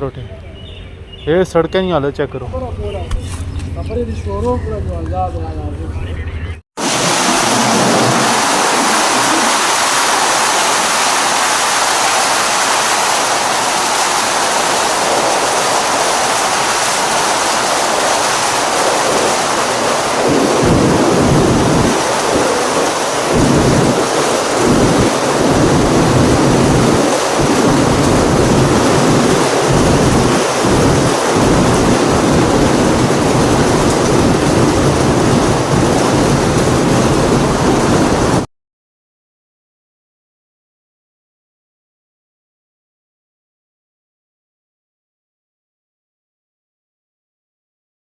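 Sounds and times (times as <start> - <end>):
heavy rain pouring: 6.8 - 38.5
low rumbling: 14.2 - 38.4.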